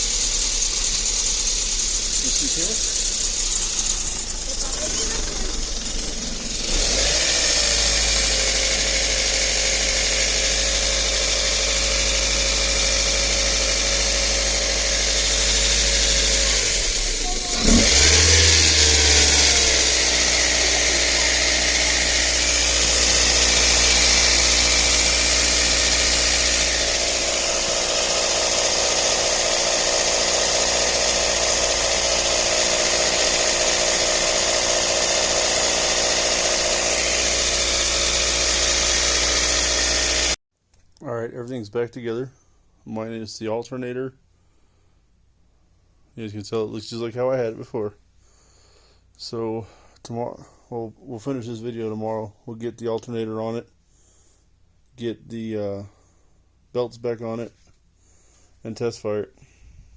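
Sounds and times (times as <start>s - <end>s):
car engine idling: 0.0s - 40.4s.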